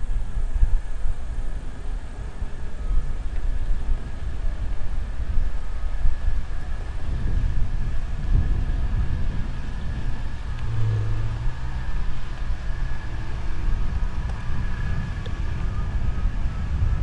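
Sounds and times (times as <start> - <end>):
wind and road noise rumble: 0.0 - 17.0
brief low hum: 8.2 - 17.0.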